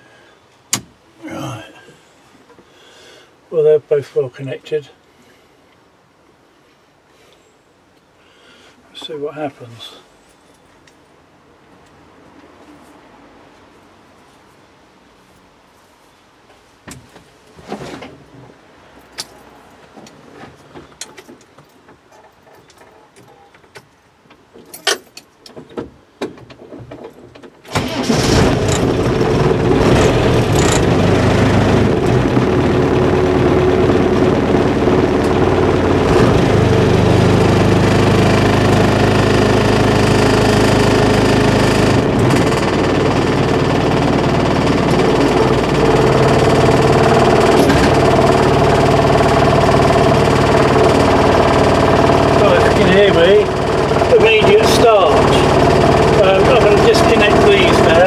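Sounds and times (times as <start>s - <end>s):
car engine starting and idling: 27.7s - 58.0s.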